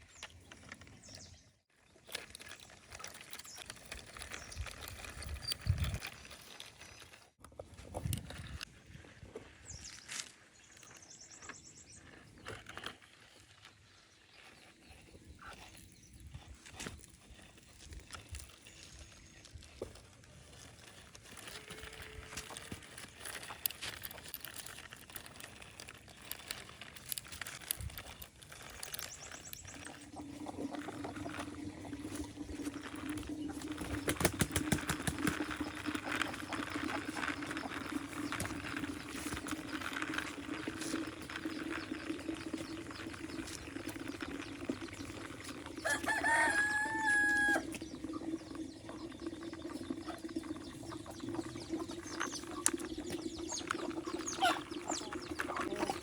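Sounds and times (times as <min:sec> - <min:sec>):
scattered clicks and knocks: 0:21.6 - 0:45.6
rooster crowing: 0:45.8 - 0:47.7.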